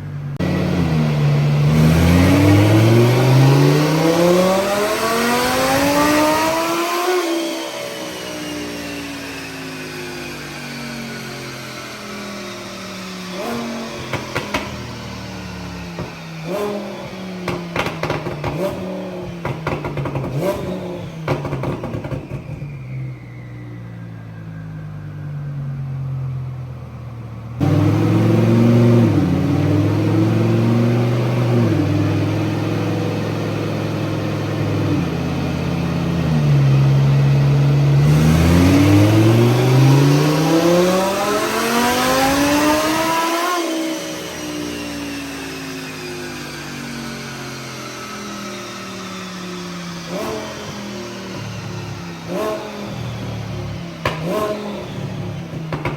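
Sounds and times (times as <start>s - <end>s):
car engine revving: 0.0s - 22.7s, 27.3s - 55.9s
exhaust crackles and pops: 17.4s - 20.7s, 21.3s - 22.8s.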